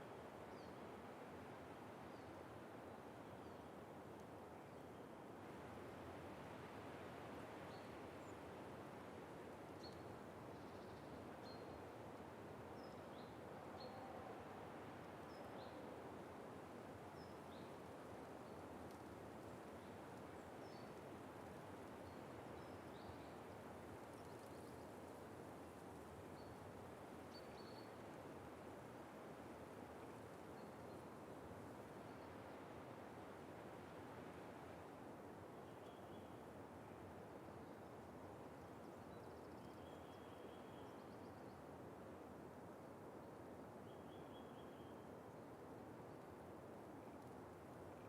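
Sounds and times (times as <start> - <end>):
background hiss: 0.0 - 48.0.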